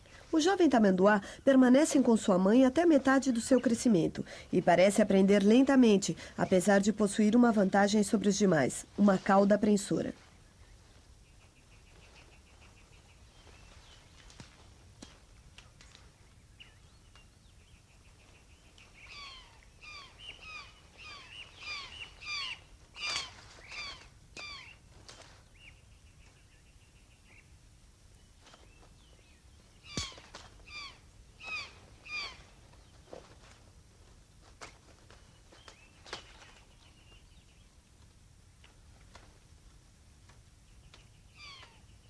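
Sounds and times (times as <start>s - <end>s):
bird calling: 17.7s - 24.8s, 28.5s - 33.2s, 40.8s - 42.0s.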